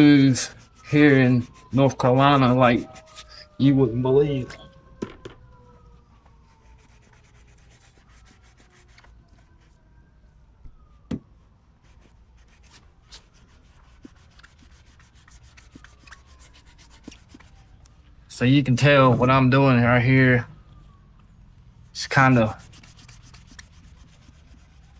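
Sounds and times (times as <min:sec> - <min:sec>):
sandpaper rubbing on plastic: 0:00.0 - 0:03.9, 0:06.4 - 0:09.8, 0:11.8 - 0:17.7, 0:22.0 - 0:24.9
faint siren wailing: 0:00.0 - 0:24.9.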